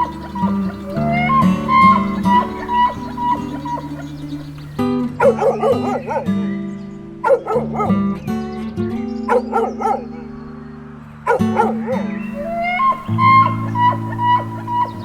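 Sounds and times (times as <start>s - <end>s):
dog yapping: 0.0s - 6.3s, 11.3s - 15.0s
guitar music: 0.0s - 7.2s, 11.1s - 15.0s.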